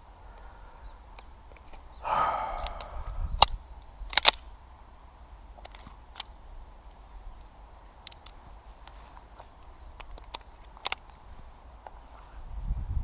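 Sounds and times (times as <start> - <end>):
pistol handling clicks: 2.6 - 4.5.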